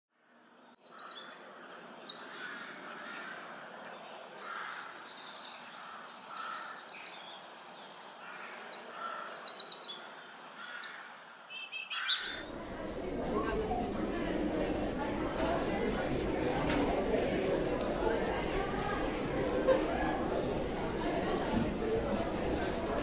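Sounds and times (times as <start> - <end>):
songbirds chirping and trilling: 0.2 - 13.6.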